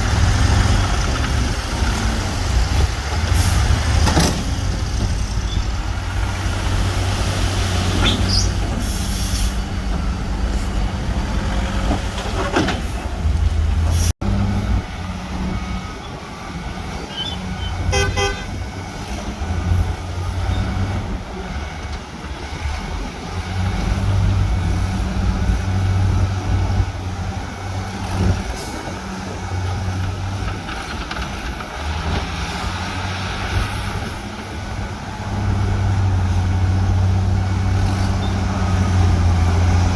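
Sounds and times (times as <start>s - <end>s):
earthmoving machinery diesel engines: 0.0s - 39.9s
short horn toot: 17.8s - 18.6s.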